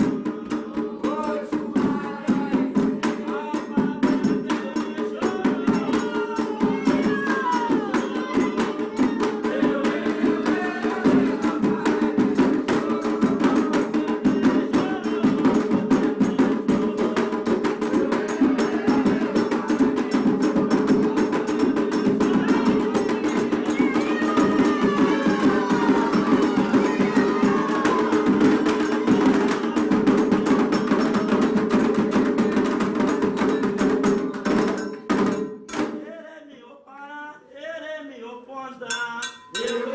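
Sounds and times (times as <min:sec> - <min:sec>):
voices singing faintly: 0:00.0 - 0:33.4
hand drums playing fast rhythm: 0:00.0 - 0:36.0, 0:39.0 - 0:39.9.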